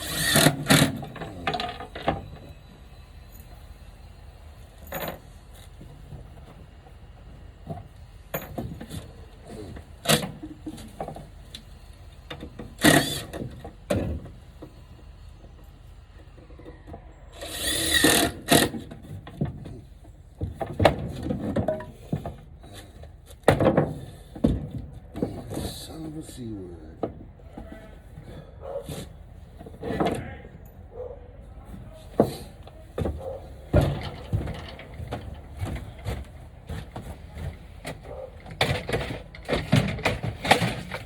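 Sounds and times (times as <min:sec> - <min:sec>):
wood knocking and clattering: 0:20.4 - 0:25.8, 0:32.1 - 0:41.0.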